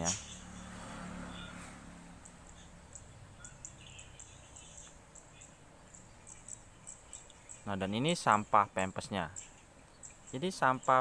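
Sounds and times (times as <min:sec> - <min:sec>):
high-pitched chirps: 0:00.0 - 0:07.8.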